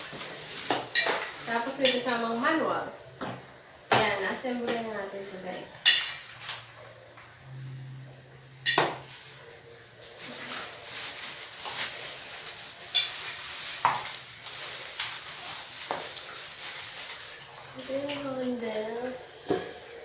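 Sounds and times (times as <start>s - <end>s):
rustling: 0.0s - 2.5s, 9.0s - 20.0s.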